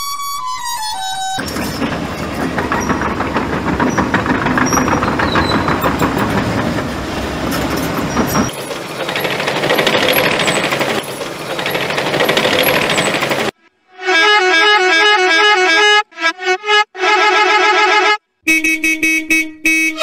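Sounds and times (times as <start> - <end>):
diesel engine clattering: 1.4 - 13.6.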